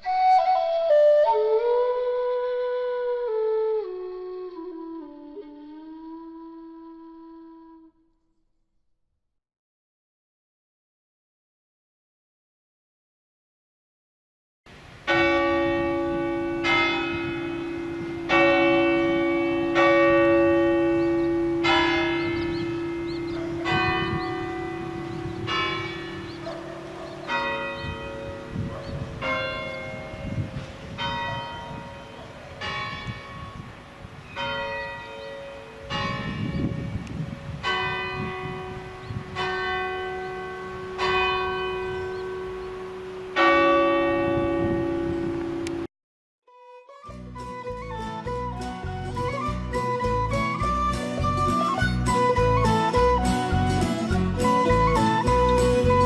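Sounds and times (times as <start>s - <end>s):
church bells tolling a tune: 15.1s - 45.9s.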